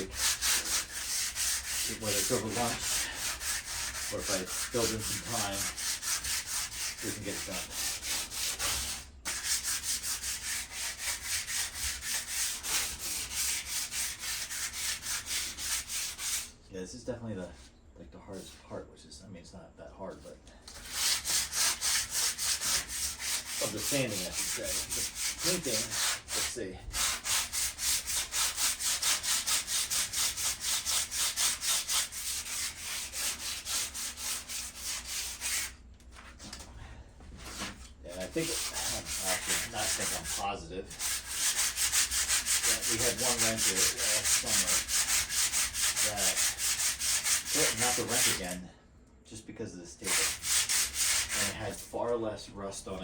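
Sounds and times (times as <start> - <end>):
sandpaper rasping on metal: 0.0 - 16.5, 20.7 - 35.8, 37.6 - 48.6, 50.0 - 52.0.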